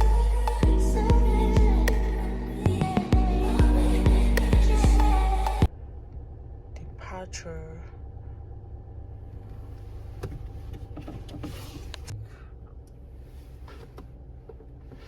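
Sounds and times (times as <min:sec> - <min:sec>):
car engine rumble: 0:00.0 - 0:15.0.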